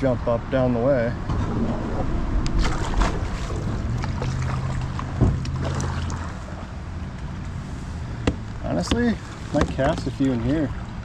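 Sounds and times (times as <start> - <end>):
low steady rumble: 0.0 - 11.0
water swishing from paddle strokes: 1.3 - 11.0
paddle knocking against hull: 2.6 - 6.2, 8.2 - 10.8.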